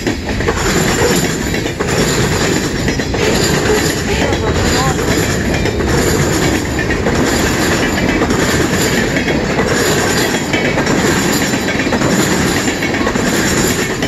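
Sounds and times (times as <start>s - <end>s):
freight train wheels rumbling: 0.0s - 14.0s
wheels clacking over rail joints: 0.0s - 14.0s.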